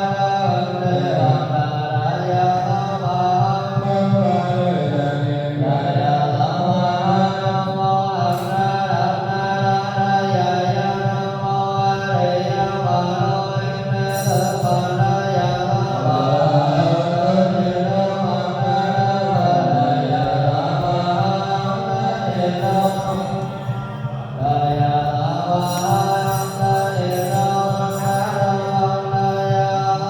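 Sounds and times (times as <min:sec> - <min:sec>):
voices chanting long notes: 0:14.1 - 0:30.0.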